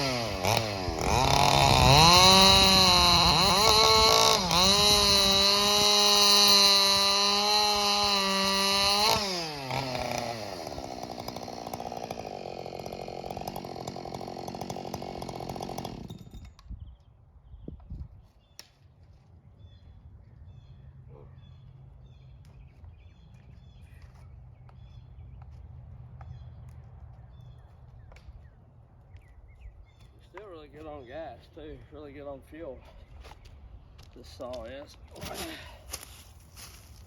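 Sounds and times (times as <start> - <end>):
chainsaw running: 0.0 - 16.7, 35.3 - 37.0.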